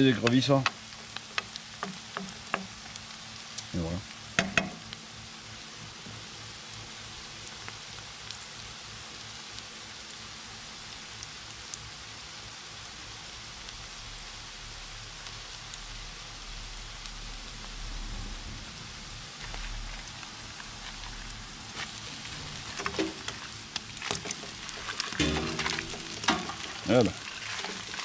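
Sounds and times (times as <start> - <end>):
onions sizzling in hot oil: 0.0 - 28.0
sharp knocks: 25.2 - 26.9.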